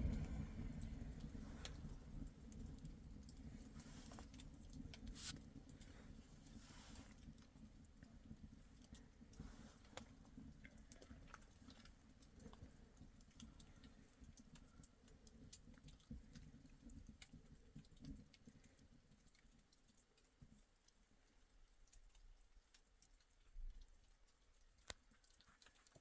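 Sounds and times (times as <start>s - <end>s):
faint low rumble: 0.0s - 14.2s
soft clicks and ticks: 0.0s - 26.0s.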